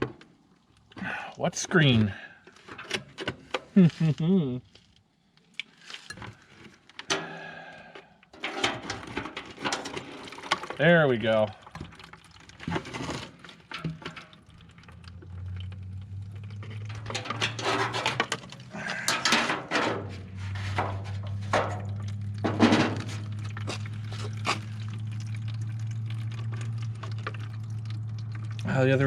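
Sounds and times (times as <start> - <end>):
fuel draining into container: 5.8 - 29.0
metal clanks: 8.3 - 10.7, 16.7 - 23.8.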